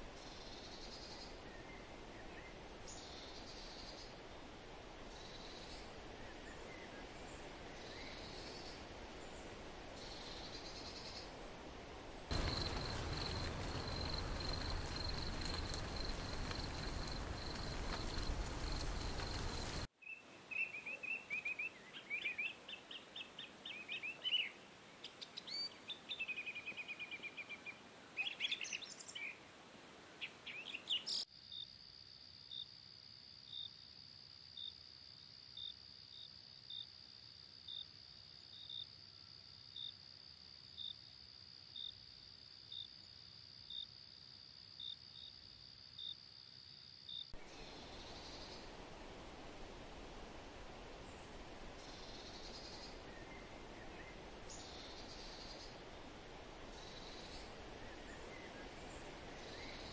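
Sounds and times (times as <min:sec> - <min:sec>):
small bird chirps and trills: 0:19.0 - 0:29.4, 0:30.2 - 0:31.3.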